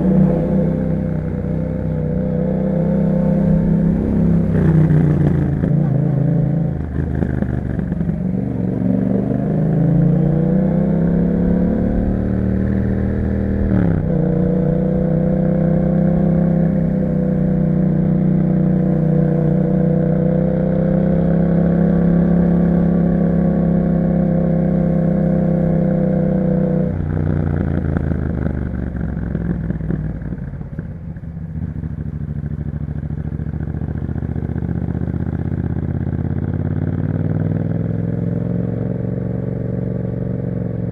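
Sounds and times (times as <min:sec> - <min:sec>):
motorcycle engine under load: 0:00.0 - 0:40.9.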